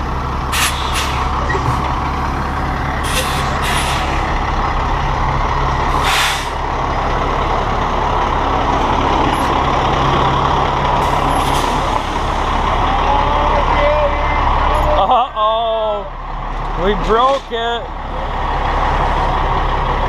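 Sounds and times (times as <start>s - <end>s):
diesel truck engine running: 0.0s - 20.0s
compressed air hissing: 3.0s - 4.2s, 6.0s - 6.6s.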